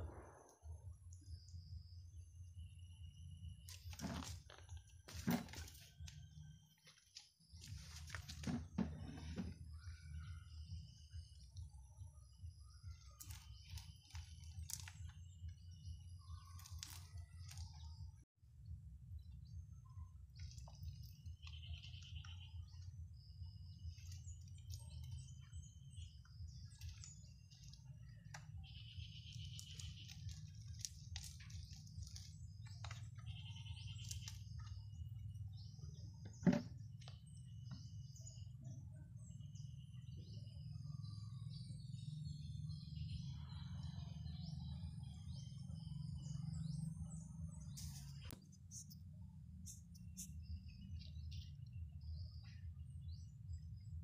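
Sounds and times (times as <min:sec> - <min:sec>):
small birds chirping and trilling: 0:01.0 - 0:18.2, 0:19.1 - 0:54.0.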